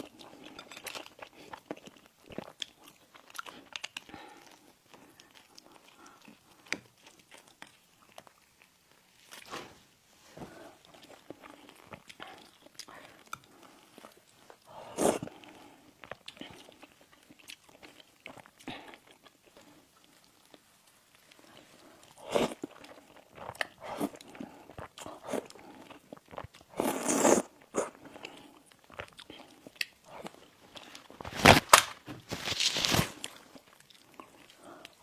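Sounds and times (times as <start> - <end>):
mouth clicks and chewing: 0.0 - 8.7
crunching bites: 30.8 - 33.3.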